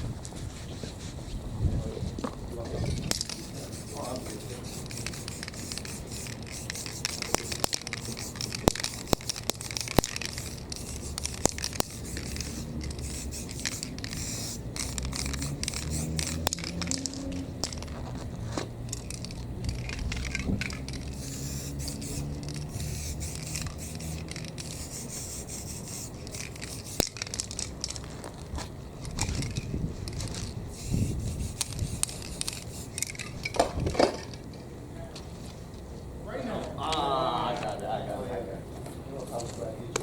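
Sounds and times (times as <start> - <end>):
scraping and rubbing on painted surface: 3.2 - 9.5
spray hiss: 3.3 - 16.6, 21.0 - 27.2, 30.7 - 33.0.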